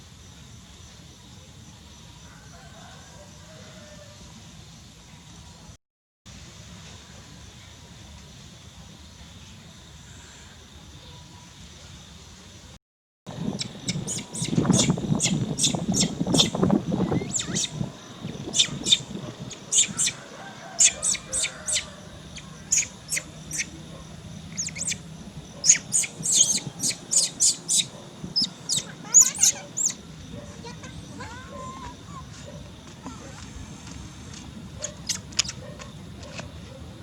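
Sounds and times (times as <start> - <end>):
high-pitched animal chirps: 13.6 - 17.8, 18.5 - 20.2, 20.8 - 23.8, 24.5 - 25.0, 25.6 - 30.0.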